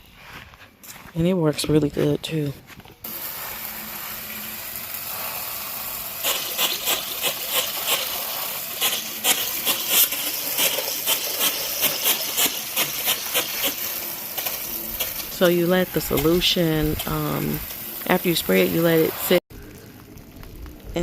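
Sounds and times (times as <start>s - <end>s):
hose spray hissing on wall: 3.0s - 19.4s.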